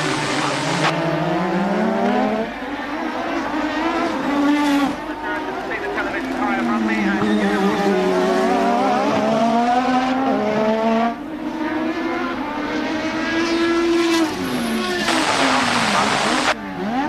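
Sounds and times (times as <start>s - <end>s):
racing car engines at high revs: 0.0s - 17.0s
loud rushing noise: 14.9s - 16.6s.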